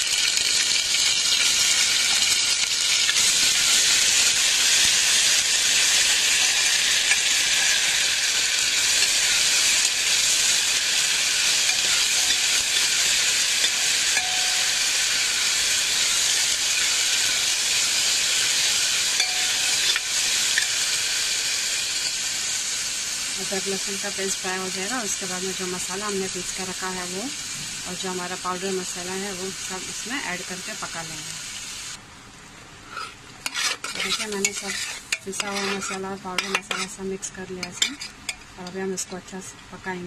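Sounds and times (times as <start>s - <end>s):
paste sizzling in hot oil: 0.0s - 32.0s, 32.8s - 39.1s
ladle stirring in a pot: 32.9s - 37.0s, 37.6s - 38.5s.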